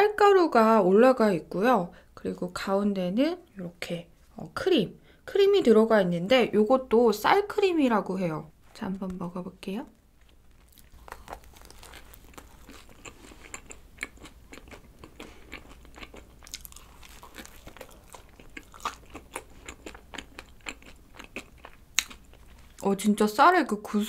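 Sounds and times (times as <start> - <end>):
person chewing crunchy donut: 10.3 - 22.8.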